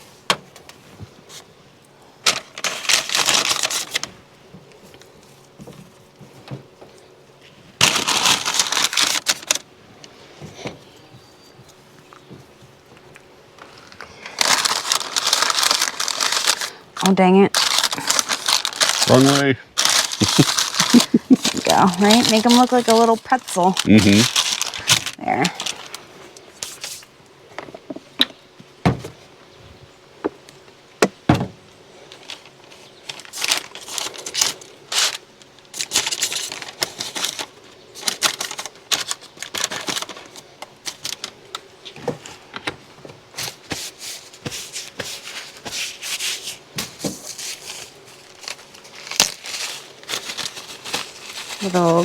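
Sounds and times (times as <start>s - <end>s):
food packaging crinkling: 2.2s - 4.2s, 7.8s - 9.7s, 13.6s - 27.1s, 32.1s - 42.5s, 43.4s - 52.0s.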